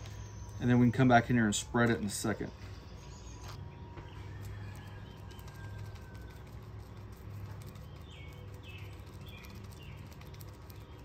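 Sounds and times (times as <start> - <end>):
faint bird chirps: 0.0 - 11.0
low hum: 0.0 - 11.0.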